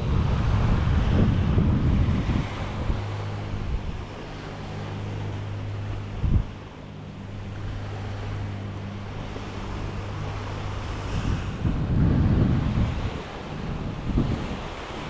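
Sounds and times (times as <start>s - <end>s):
low hum: 0.0s - 15.0s
surf washing on beach: 0.0s - 15.0s
wind buffeting microphone: 0.0s - 15.0s.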